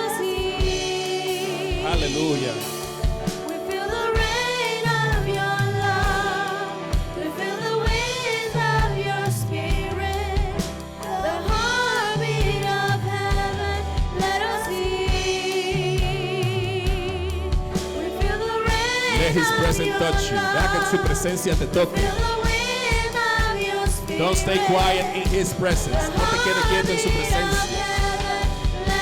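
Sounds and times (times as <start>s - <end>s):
people singing worship song: 0.0s - 29.0s
drumbeat: 0.4s - 29.0s
bass guitar: 7.9s - 29.0s.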